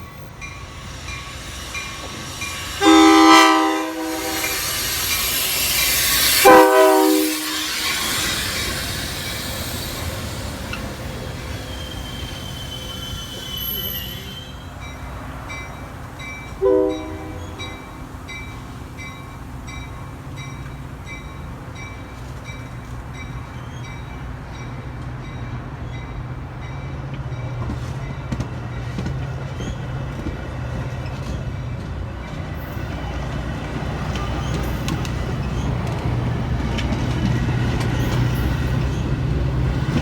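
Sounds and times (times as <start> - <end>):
railroad warning bell dinging: 0.0 - 29.8
low rumble of a train: 0.0 - 40.0
train horn toot: 2.8 - 4.7, 6.4 - 7.9, 16.6 - 17.8.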